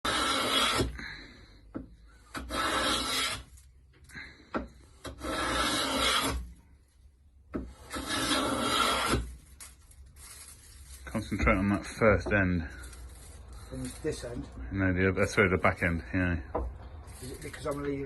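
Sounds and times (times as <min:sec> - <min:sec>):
hand plane shaving wood: 0:00.0 - 0:01.0, 0:02.3 - 0:03.4, 0:05.0 - 0:06.4, 0:07.7 - 0:09.3.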